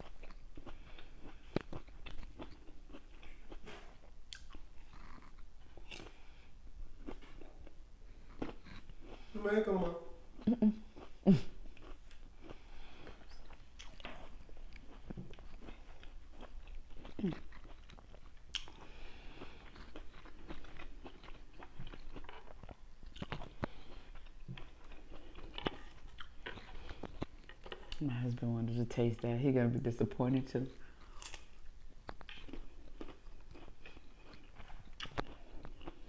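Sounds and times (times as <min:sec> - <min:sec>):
person chewing fruit: 0:00.0 - 0:28.2, 0:30.6 - 0:36.0
person humming: 0:10.4 - 0:11.5.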